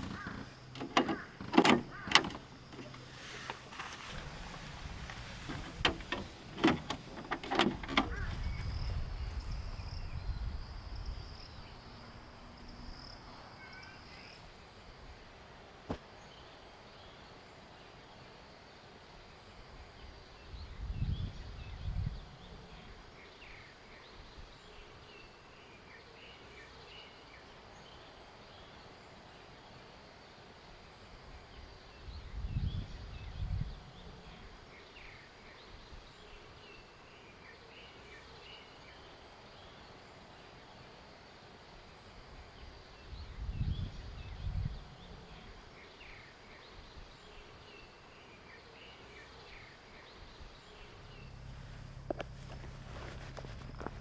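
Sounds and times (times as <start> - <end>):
low rumbles: 0.0 - 13.2, 50.6 - 54.0
birds chirping: 0.0 - 14.4, 42.0 - 54.0.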